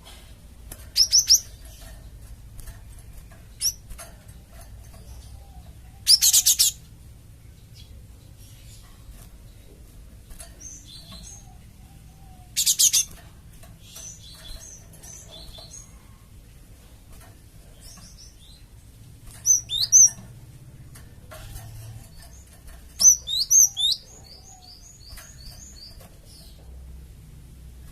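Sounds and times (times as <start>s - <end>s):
harsh buzzy bird rattle: 0.0s - 5.8s, 8.8s - 11.4s, 18.8s - 24.3s
low steady hum: 0.0s - 27.9s
bird chirps: 0.9s - 2.2s, 2.9s - 3.9s, 4.8s - 6.9s, 10.5s - 13.2s, 19.3s - 20.3s, 21.4s - 26.7s.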